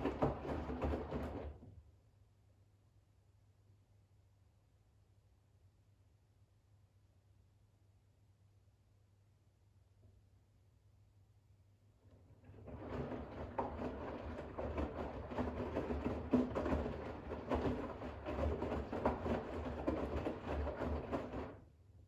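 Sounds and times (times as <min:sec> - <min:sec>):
washing machine drum sloshing: 0:00.0 - 0:01.5, 0:12.4 - 0:21.6
washing machine motor hum: 0:00.0 - 0:01.6, 0:12.1 - 0:21.6.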